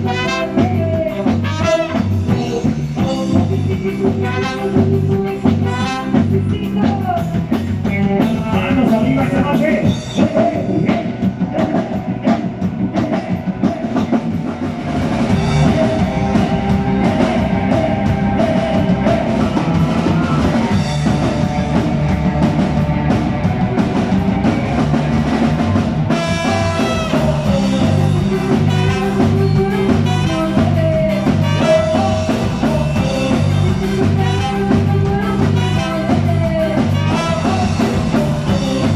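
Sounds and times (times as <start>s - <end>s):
bass: 0.0s - 38.9s
drum kit: 0.0s - 38.9s
guitar: 0.0s - 38.9s.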